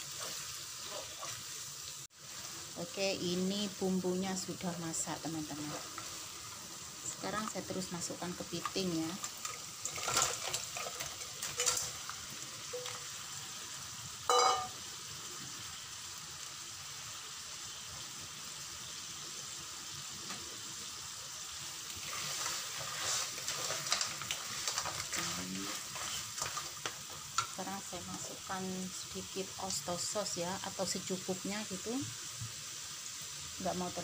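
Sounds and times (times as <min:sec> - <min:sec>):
wooden spatula scraping a wok: 0:00.0 - 0:01.7, 0:05.4 - 0:06.6, 0:08.5 - 0:12.1, 0:21.9 - 0:27.6
crab sizzling in oil: 0:00.0 - 0:34.0
ringing metal clank: 0:14.3 - 0:14.8.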